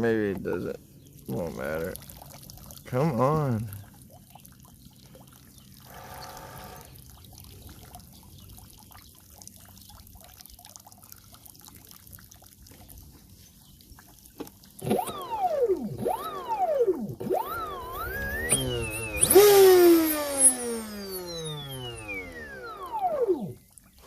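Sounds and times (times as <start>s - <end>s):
water trickling from boat hull: 0.0s - 19.3s, 19.9s - 24.0s
electric motor whining: 5.9s - 7.0s, 14.8s - 23.6s.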